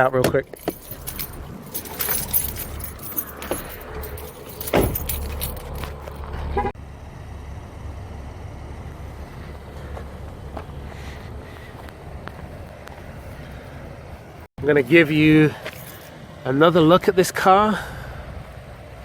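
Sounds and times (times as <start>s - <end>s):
keys jangling: 0.4s - 6.3s, 15.6s - 16.1s
loud thump: 4.7s - 5.2s.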